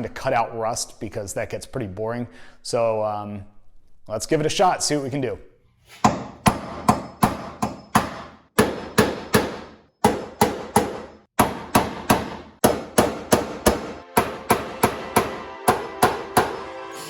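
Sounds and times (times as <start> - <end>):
hammer blows ringing: 6.0 - 16.8.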